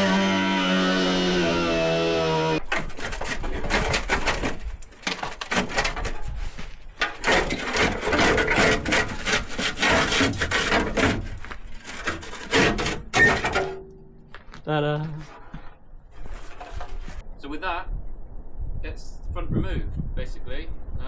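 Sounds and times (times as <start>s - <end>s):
body panel scraping and rubbing: 0.0s - 13.7s, 16.1s - 17.2s.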